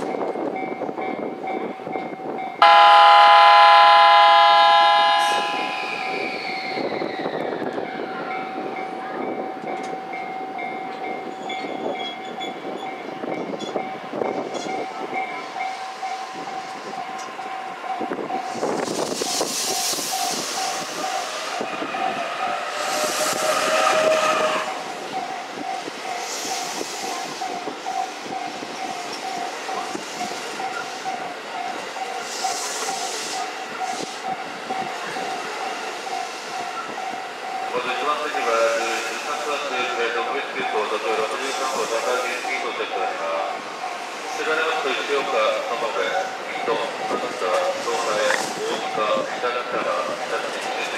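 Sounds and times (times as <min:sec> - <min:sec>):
electric train running on rails: 0:00.0 - 0:50.9
steady pulsing tone: 0:02.6 - 0:06.2.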